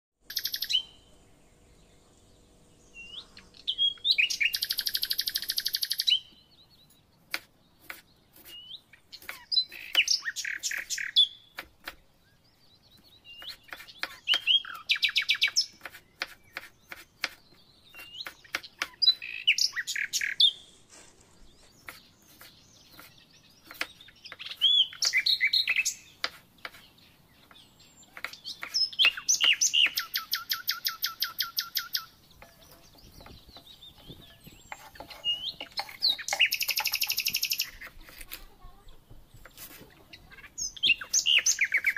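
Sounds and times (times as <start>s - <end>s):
songbird singing trilled phrases: 0.2s - 11.6s, 12.2s - 20.8s, 21.5s - 41.9s
knife chopping on cutting board: 13.4s - 14.5s, 15.8s - 17.4s, 21.9s - 23.9s, 32.4s - 36.0s.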